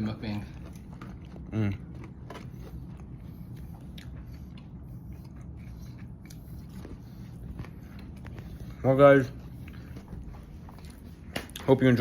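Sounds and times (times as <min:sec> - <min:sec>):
person chewing bread: 0:00.0 - 0:12.0
mouth clicks and crunches: 0:00.1 - 0:08.8.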